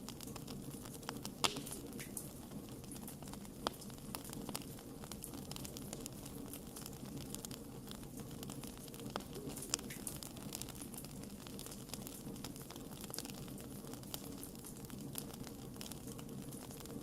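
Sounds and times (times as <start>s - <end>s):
campfire crackling: 0.0s - 17.0s
loud fire pops: 0.0s - 17.0s.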